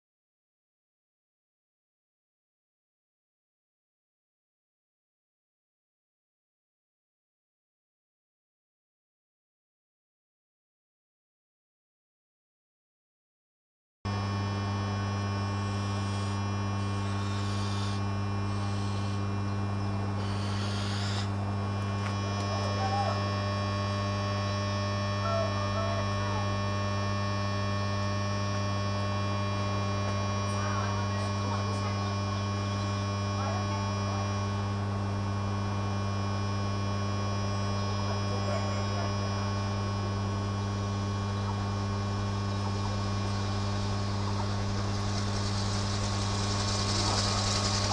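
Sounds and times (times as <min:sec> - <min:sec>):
electrical hum with deep buzz: 0:14.1 - 0:47.9.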